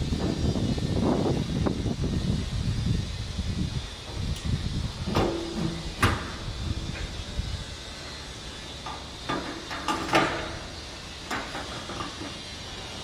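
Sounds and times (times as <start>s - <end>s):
sharp knocks and clanks: 5.1s - 6.4s, 8.8s - 10.6s.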